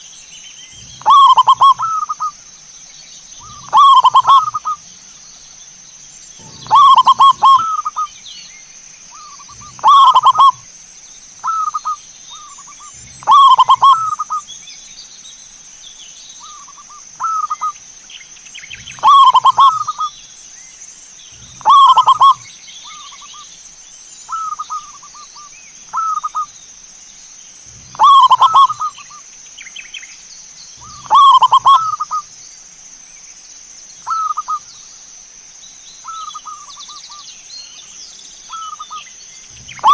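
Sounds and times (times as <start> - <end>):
dove cooing: 0.8 - 2.3, 3.4 - 4.8, 6.4 - 8.1, 9.2 - 10.7, 11.4 - 14.4, 18.8 - 20.1, 21.4 - 23.0, 25.9 - 26.5, 27.8 - 29.1, 30.8 - 32.2, 34.1 - 34.6, 39.7 - 39.9
steady high-pitched tone: 6.4 - 8.0, 12.6 - 14.3.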